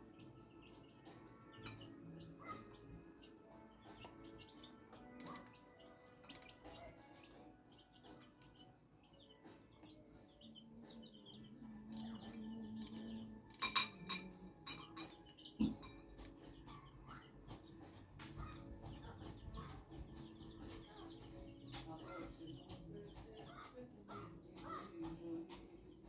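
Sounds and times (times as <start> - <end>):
chicks cheeping: 0.0 - 26.0
hens clucking: 9.3 - 26.0.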